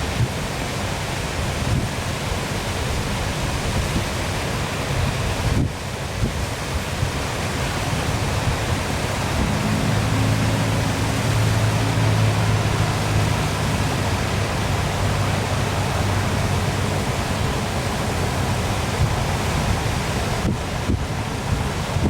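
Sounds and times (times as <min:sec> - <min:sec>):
waterfall rushing: 0:00.0 - 0:22.0
low hum: 0:09.3 - 0:20.8.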